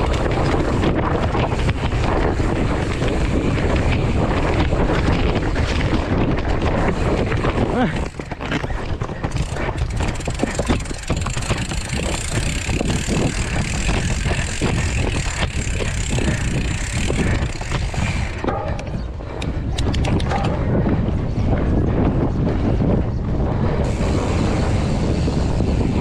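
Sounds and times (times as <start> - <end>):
tyres crunching: 0.0 - 18.8
bike frame rattling: 0.0 - 20.8, 23.8 - 26.0
wind buffeting microphone: 0.0 - 26.0.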